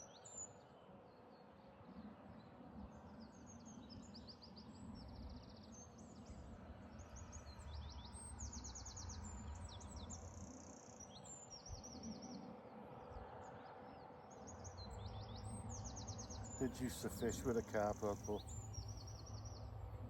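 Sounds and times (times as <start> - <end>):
songbirds trilling and chirping: 0.0 - 20.0.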